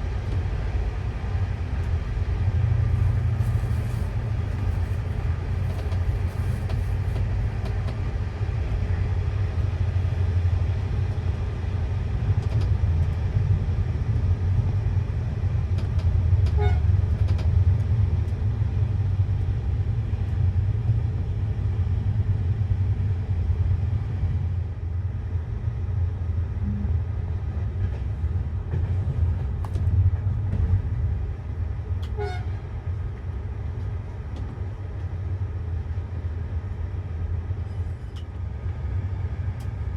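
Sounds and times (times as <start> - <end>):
passenger train rumbling on track: 0.0 - 39.9.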